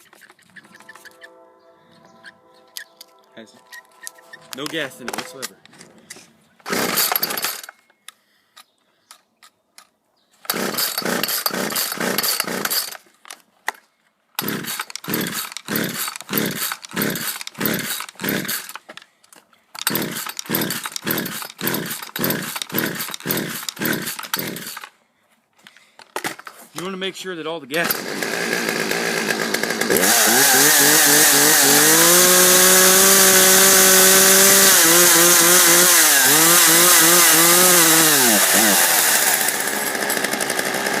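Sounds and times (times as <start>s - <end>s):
chainsaw engine sputtering: 6.6s - 7.8s, 10.5s - 13.0s, 14.4s - 18.9s, 19.8s - 24.9s, 27.7s - 41.0s.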